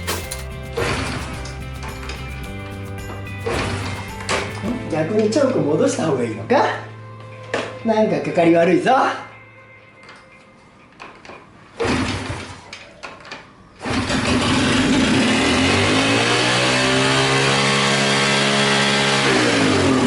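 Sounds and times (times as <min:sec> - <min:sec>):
motorcycle engine starting and revving: 0:00.0 - 0:04.9, 0:13.8 - 0:20.0.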